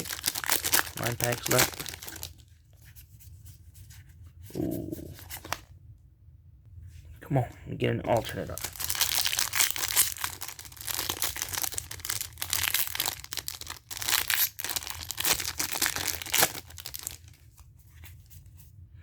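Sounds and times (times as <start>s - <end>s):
foil wrapper crinkling and tearing: 0.0s - 2.6s, 8.4s - 17.6s.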